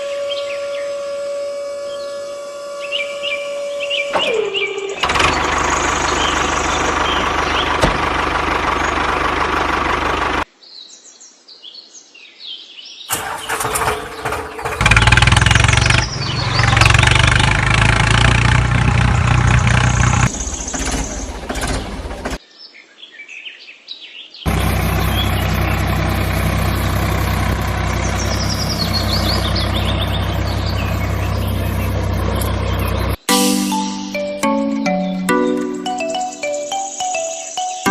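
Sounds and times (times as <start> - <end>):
faint birds chirping: 0.0 - 9.4, 15.9 - 18.3, 18.9 - 33.2
engine running: 4.1 - 10.4, 13.1 - 22.4, 24.5 - 33.3.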